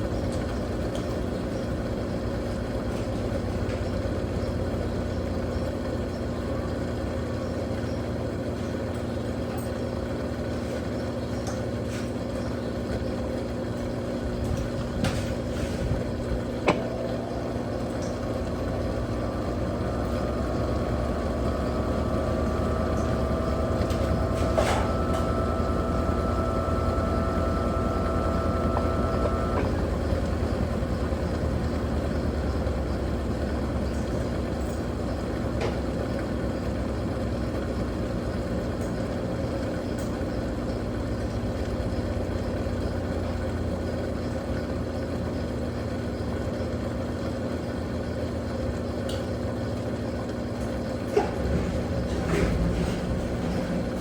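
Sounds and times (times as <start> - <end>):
washing machine humming: 0.0 - 54.0
rising whine: 16.7 - 33.1.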